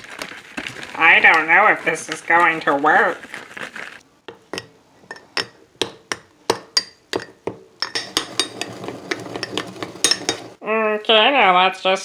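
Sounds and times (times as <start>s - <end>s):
spoon clinking in mug: 6.8s - 10.5s.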